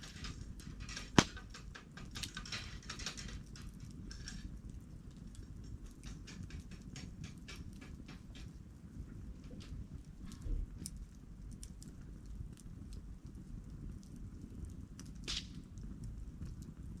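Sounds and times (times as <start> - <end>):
campfire crackling: 0.0 - 17.0
loud sharp pop of fire: 1.0 - 1.6, 15.2 - 15.7.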